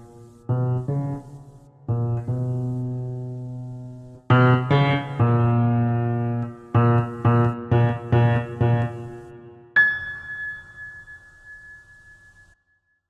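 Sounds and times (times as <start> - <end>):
low piano notes: 0.0 - 12.6
high bell-like tone: 9.8 - 12.6.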